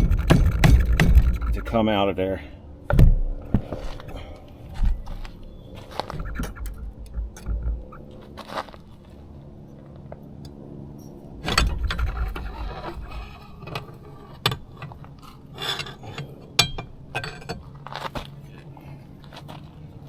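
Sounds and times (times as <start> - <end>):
sharp metal knocks and clicks: 0.0 - 1.8, 6.1 - 8.0, 11.4 - 17.7
metal scraping rumble: 0.0 - 2.0, 3.1 - 9.8, 11.0 - 17.9.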